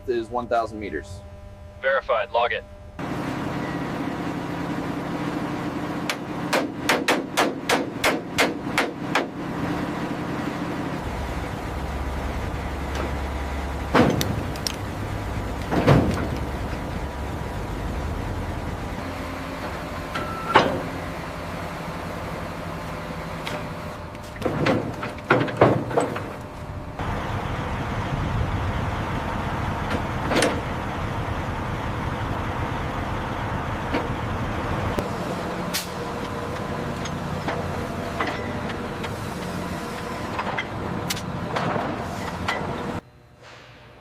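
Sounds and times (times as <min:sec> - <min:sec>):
machinery humming: 0:00.0 - 0:44.0
loud metallic knocks: 0:06.0 - 0:09.4, 0:13.8 - 0:14.5, 0:15.7 - 0:16.7, 0:20.1 - 0:21.0, 0:24.4 - 0:26.4.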